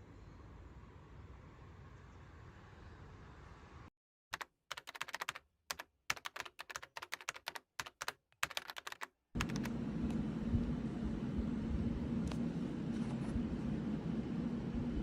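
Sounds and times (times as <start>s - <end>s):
computer keyboard typing: 4.4s - 10.2s
steady low hum: 9.4s - 15.0s.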